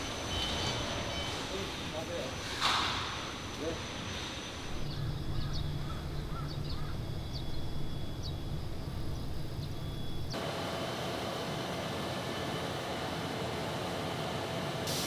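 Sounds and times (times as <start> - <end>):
factory machinery hiss and hum: 0.0 - 6.7, 7.6 - 15.0
low outdoor rumble: 0.0 - 10.4
bird chirping: 4.7 - 10.4.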